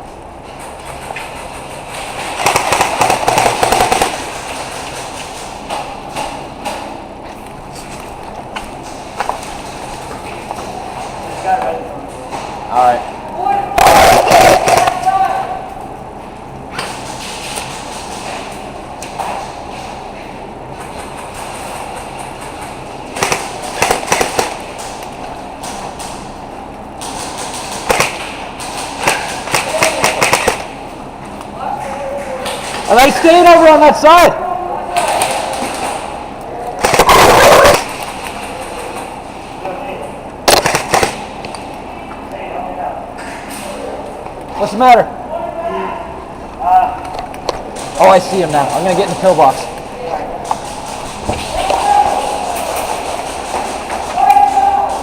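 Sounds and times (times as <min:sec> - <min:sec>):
airsoft guns firing: 0:01.9 - 0:06.8, 0:13.7 - 0:15.5, 0:21.0 - 0:26.3, 0:27.0 - 0:30.8, 0:35.0 - 0:39.1, 0:40.4 - 0:41.6, 0:47.5 - 0:49.6, 0:50.4 - 0:55.0.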